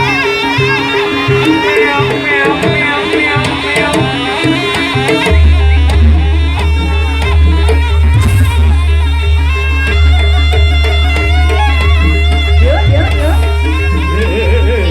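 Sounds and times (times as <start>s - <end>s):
drum strokes: 0.0s - 14.9s
pitched percussion melody: 0.0s - 14.9s
wailing melodic line: 0.0s - 14.9s
deep steady bass tone: 5.3s - 14.9s.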